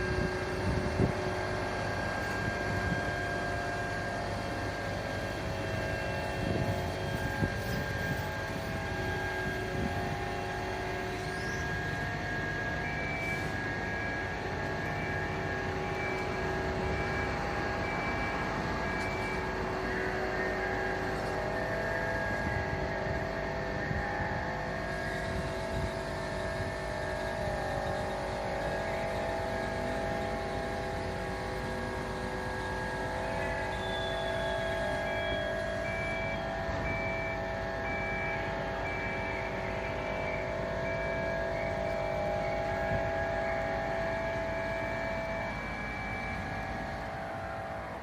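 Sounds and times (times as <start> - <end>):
fire truck mechanical hum: 0.0 - 48.0
faint beep: 12.7 - 19.5, 32.2 - 47.0.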